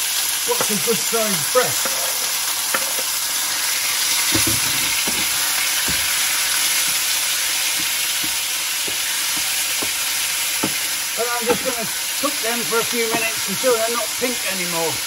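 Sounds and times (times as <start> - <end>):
chicken sizzling in frying pan: 0.0 - 15.0
wooden spatula knocking on pan: 4.3 - 7.0, 7.7 - 11.9, 13.0 - 13.5.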